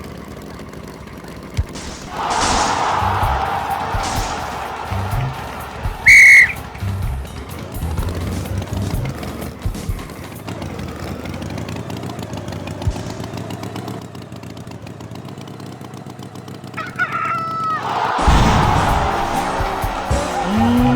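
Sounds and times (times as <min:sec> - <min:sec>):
loud rushing noise: 0:01.8 - 0:08.7, 0:17.9 - 0:20.9
rooster crowing: 0:02.1 - 0:07.0, 0:16.8 - 0:20.9.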